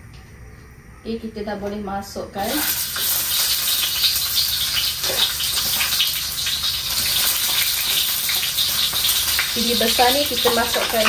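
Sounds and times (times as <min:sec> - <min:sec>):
vegetables sizzling in hot oil: 0:02.4 - 0:11.0.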